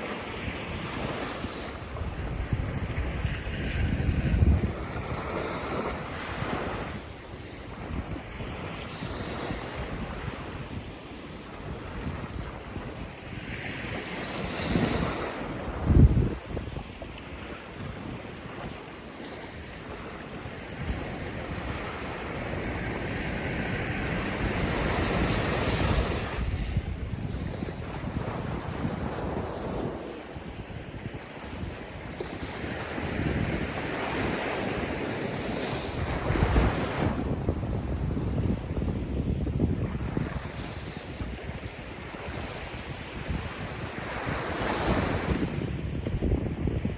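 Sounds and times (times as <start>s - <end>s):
ocean waves washing on shore: 0.0s - 46.9s
wind buffeting microphone: 0.0s - 46.9s.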